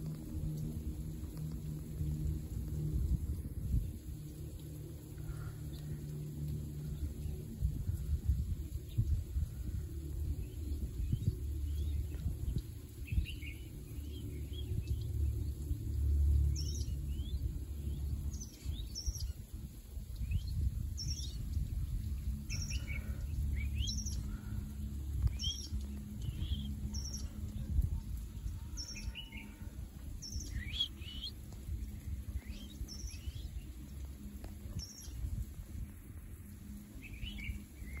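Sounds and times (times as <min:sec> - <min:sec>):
steady low rumble: 0:00.0 - 0:38.0
bird chirping: 0:25.2 - 0:34.0.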